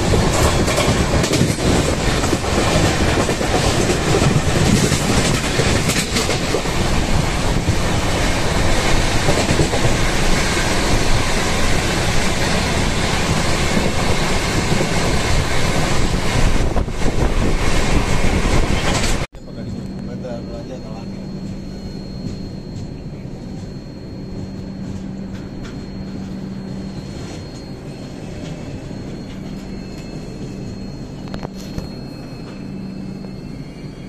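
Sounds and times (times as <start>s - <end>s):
train wheels rushing on rails: 0.0s - 19.3s.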